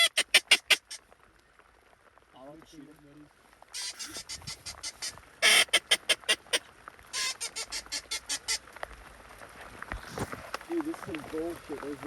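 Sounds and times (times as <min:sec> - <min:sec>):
duck call quacking: 0:00.0 - 0:01.0, 0:03.8 - 0:08.6.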